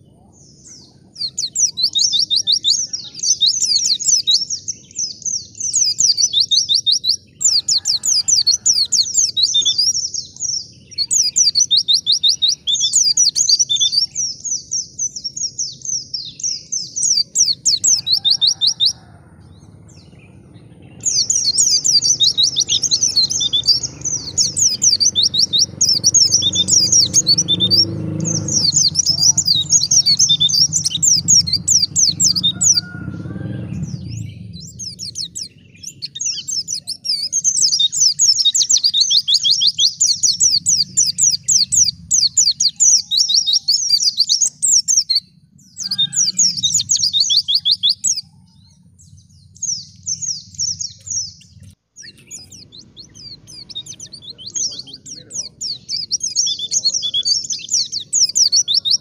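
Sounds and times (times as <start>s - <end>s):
bird twittering song: 0.0s - 59.0s
low rumble: 19.0s - 36.3s, 45.2s - 56.0s.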